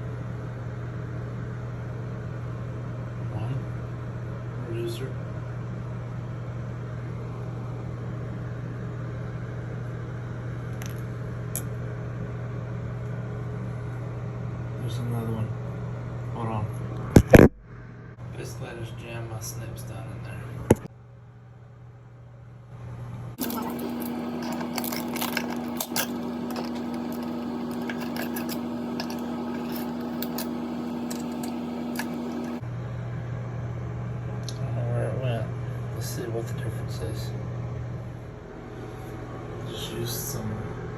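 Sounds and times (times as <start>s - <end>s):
low hum with hiss: 0.0s - 40.9s.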